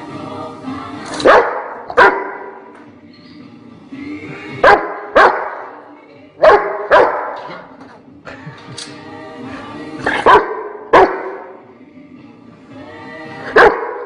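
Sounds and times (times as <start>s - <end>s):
dog barking: 1.2s - 2.6s, 4.6s - 5.7s, 6.4s - 7.6s, 10.1s - 11.5s, 13.5s - 14.0s.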